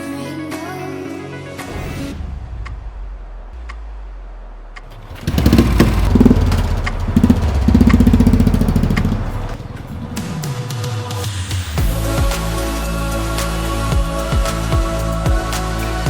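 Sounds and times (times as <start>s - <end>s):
low hum: 3.6s - 11.0s
motorcycle engine revving: 4.9s - 11.2s.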